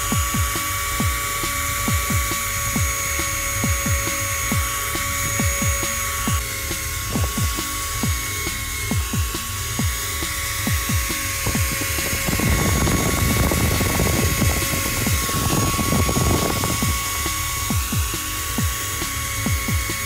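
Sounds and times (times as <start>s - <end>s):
drill bit grinding: 0.0s - 20.0s
electric drill motor whining: 0.0s - 20.0s
music with thumping beat: 0.0s - 20.0s.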